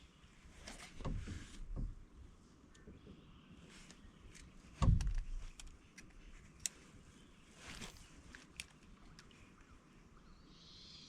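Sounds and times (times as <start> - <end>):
dull thump: 4.8 - 5.3.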